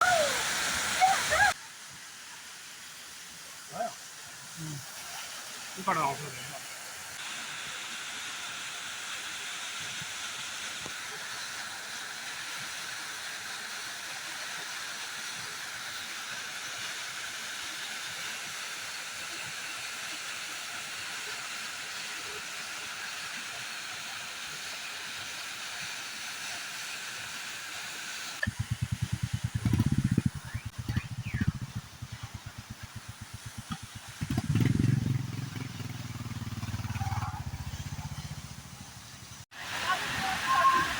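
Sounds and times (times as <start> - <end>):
waterfall rushing: 0.0 - 1.9, 3.3 - 18.2, 26.9 - 40.9.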